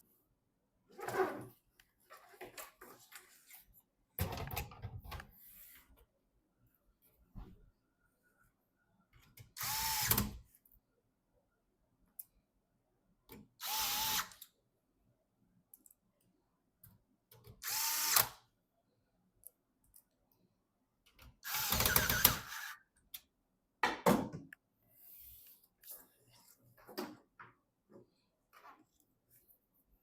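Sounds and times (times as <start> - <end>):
electric screwdriver driving screws: 13.6 - 14.4, 17.6 - 18.4, 21.4 - 22.8.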